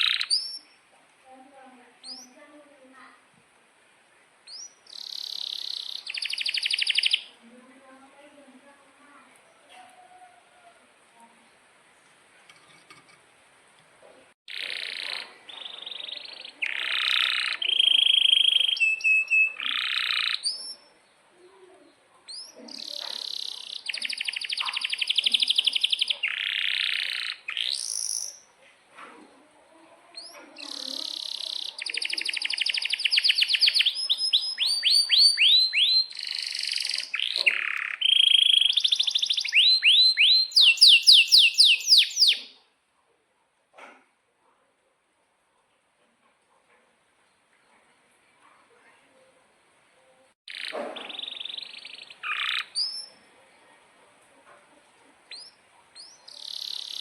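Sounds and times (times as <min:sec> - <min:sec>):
canary singing trills: 0:00.0 - 0:00.9, 0:02.0 - 0:02.5, 0:04.4 - 0:07.4, 0:14.5 - 0:28.5, 0:30.1 - 0:42.7, 0:50.5 - 0:53.3, 0:55.3 - 0:57.0.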